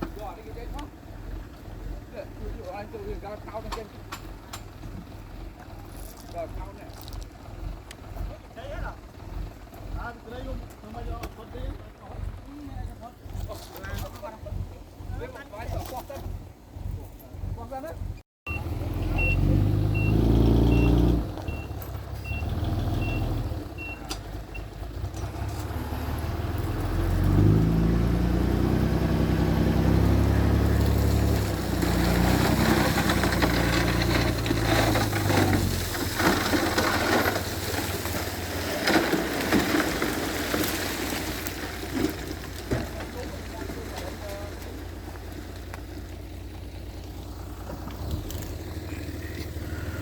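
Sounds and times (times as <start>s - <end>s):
diesel machinery engine revving: 0.0s - 50.0s
reversing beeper: 18.5s - 24.7s
rattling crackling noise: 30.9s - 40.5s.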